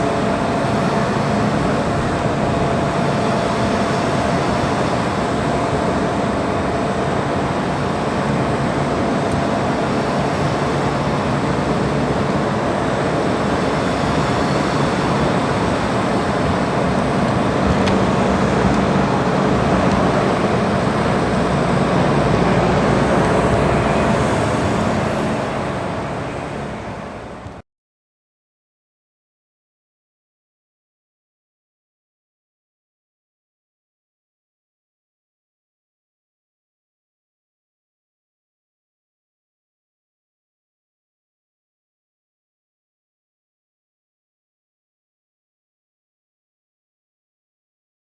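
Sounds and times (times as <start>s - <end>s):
engine or traffic noise: 0.0s - 27.6s.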